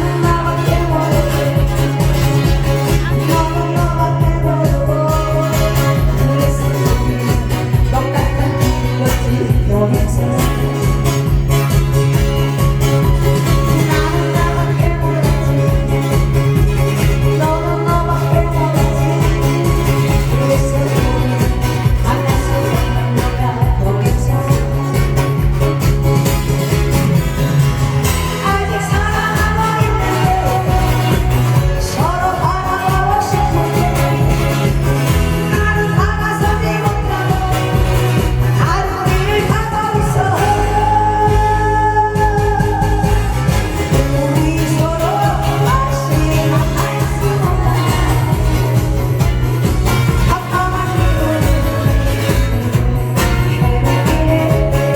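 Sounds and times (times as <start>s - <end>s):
person singing: 0.0s - 54.9s
song over sound system: 0.0s - 54.9s
upbeat music with steady beat: 42.2s - 54.9s.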